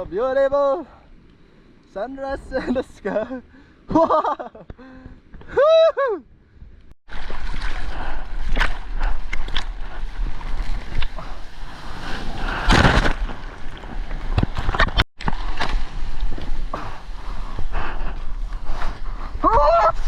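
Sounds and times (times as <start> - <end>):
water rushing and splashing: 7.1 - 16.1.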